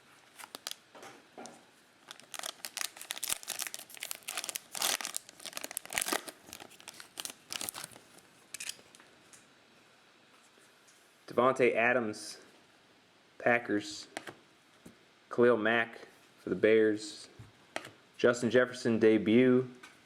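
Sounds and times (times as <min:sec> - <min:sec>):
wrapper being torn and crinkled: 0:00.3 - 0:00.8, 0:02.0 - 0:09.0.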